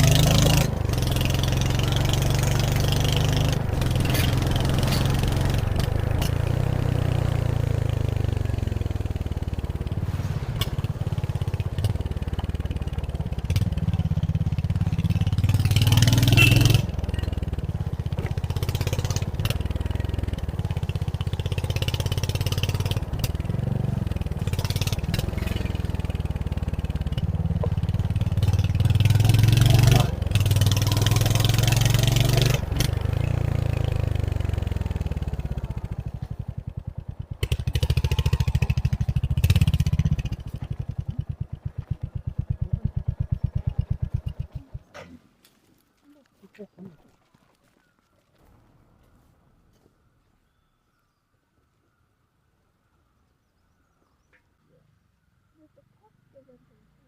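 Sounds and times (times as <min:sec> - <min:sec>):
motorcycle engine revving: 0:00.0 - 0:45.2.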